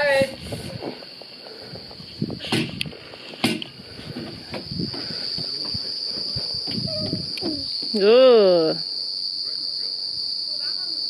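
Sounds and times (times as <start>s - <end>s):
insects shrilling: 0.0s - 11.0s.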